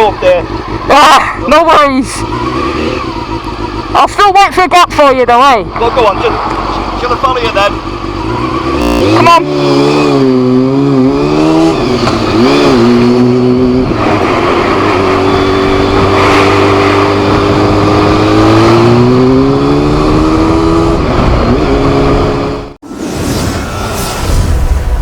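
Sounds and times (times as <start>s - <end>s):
motorcycle engine: 0.0s - 23.0s
heavy wind noise: 11.0s - 25.0s.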